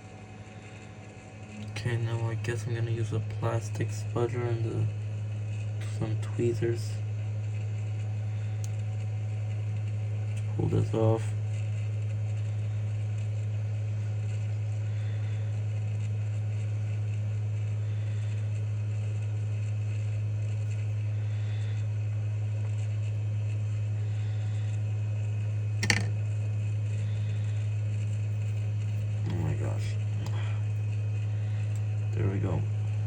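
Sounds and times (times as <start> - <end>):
low hum: 0.0 - 33.0
sharp click of parts prying apart: 25.8 - 26.1.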